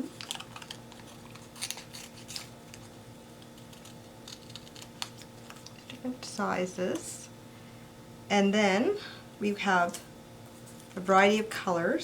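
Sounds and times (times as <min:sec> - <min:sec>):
faint steady hum: 0:00.0 - 0:12.0
scissors snipping paper: 0:00.2 - 0:06.0.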